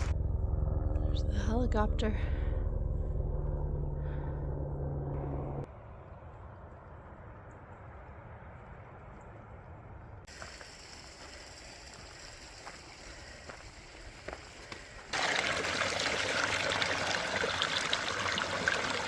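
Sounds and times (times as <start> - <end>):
helicopter drone: 0.0 - 6.1
mountain stream running: 10.3 - 19.0.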